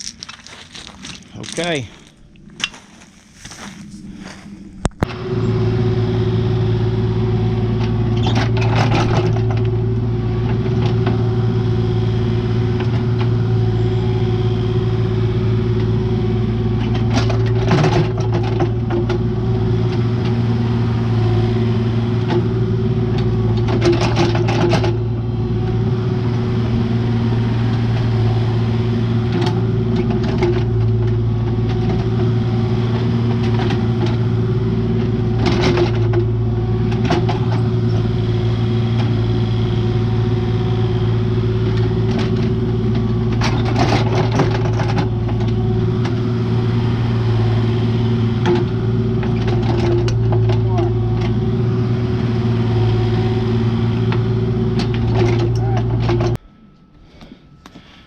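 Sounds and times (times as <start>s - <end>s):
engine running steadily: 0.0s - 58.0s.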